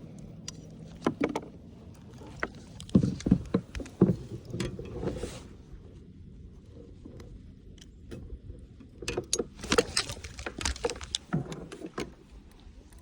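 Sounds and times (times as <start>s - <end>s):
gear clattering: 9.1s - 12.4s.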